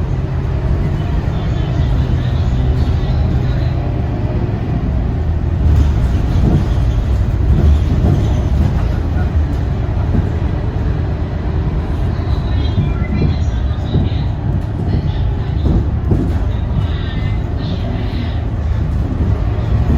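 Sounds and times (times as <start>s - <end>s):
bus diesel engine rumbling: 0.0s - 19.9s
body rattles and knocks: 5.5s - 11.0s, 11.8s - 19.9s.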